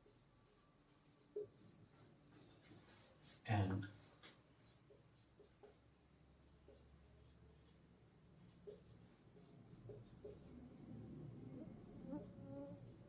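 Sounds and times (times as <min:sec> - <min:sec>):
pen scratching while writing: 0:00.0 - 0:02.6, 0:04.7 - 0:07.8, 0:08.4 - 0:10.6, 0:11.9 - 0:13.0.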